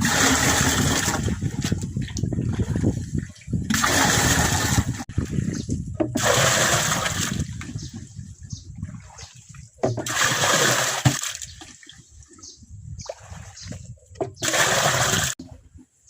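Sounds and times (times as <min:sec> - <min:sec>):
rushing splashing water: 0:00.0 - 0:05.3, 0:06.2 - 0:07.9, 0:08.8 - 0:11.8, 0:14.4 - 0:15.4.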